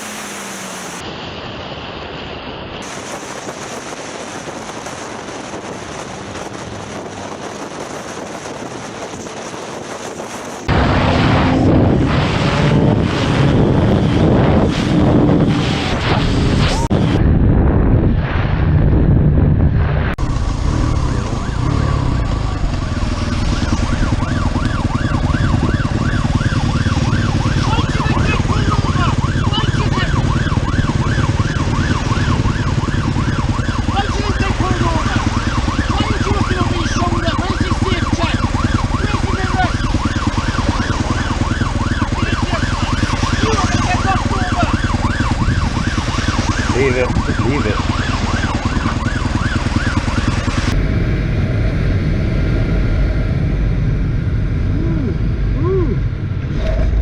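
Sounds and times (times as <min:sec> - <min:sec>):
low rumble: 0:02.8 - 0:37.5, 0:50.4 - 0:57.0
siren yelping: 0:20.3 - 0:50.8.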